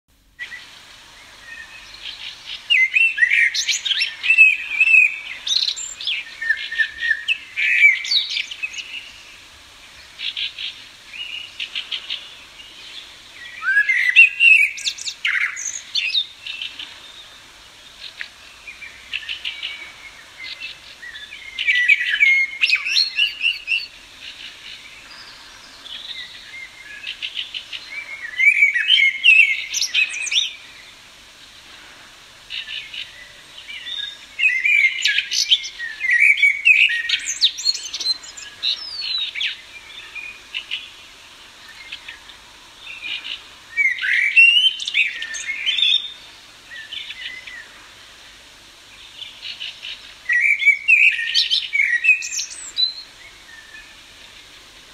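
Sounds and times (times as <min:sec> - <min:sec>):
songbird singing warbled phrases: 0:00.4 - 0:31.0, 0:32.5 - 0:47.8, 0:49.0 - 0:54.5
bird chirps and trills: 0:32.5 - 0:41.0.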